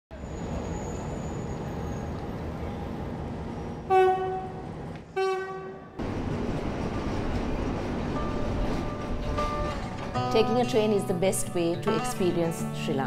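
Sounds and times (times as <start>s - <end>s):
train rumbling along rails: 0.1s - 12.8s
train horn blasts: 3.9s - 6.0s.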